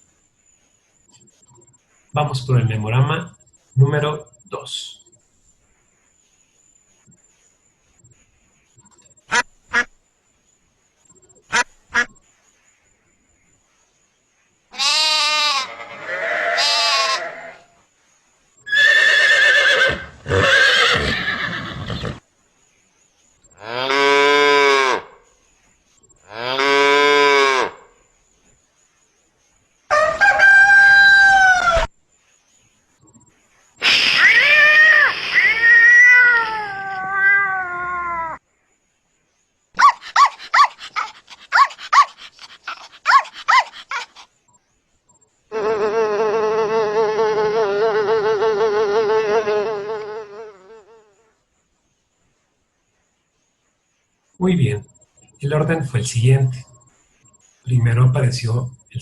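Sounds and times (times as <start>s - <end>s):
sheep bleating: 14.8s - 17.6s
horse whinnying: 18.7s - 22.2s, 33.8s - 37.4s
cat meowing: 33.8s - 38.4s
hen calling: 39.8s - 44.2s.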